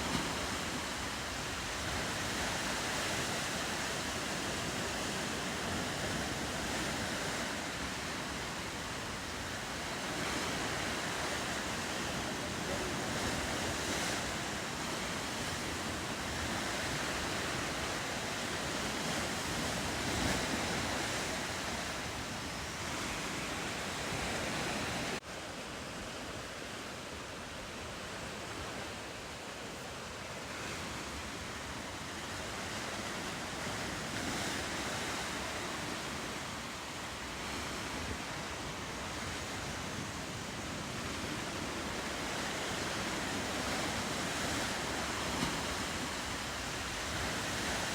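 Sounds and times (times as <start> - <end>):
ocean surf washing on shore: 0.0 - 47.9.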